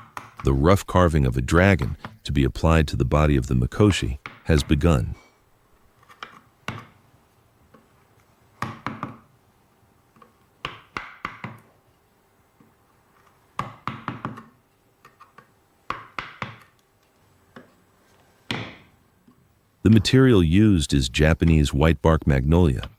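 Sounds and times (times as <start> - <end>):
hammer knocking chisel into wood: 10.6 - 11.7, 13.6 - 14.5, 15.9 - 16.7.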